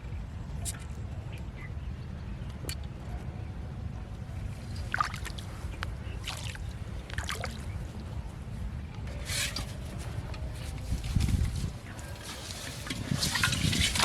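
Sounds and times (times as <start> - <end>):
water splashing and trickling: 4.4 - 8.2, 9.1 - 14.0.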